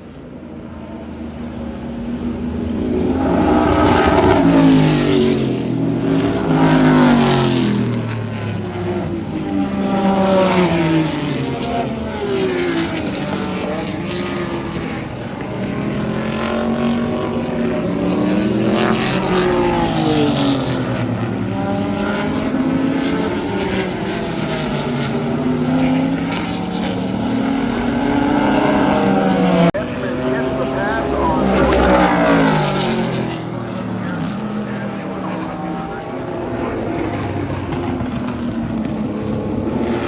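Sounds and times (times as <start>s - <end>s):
race cars passing at speed: 0.0s - 40.0s.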